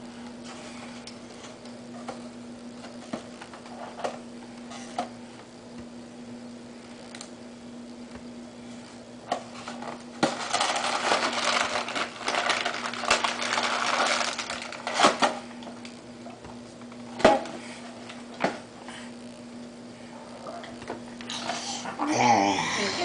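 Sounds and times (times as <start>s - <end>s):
steady low hum: 0.0s - 23.0s
crinkling of cookie wrappers: 10.2s - 15.9s.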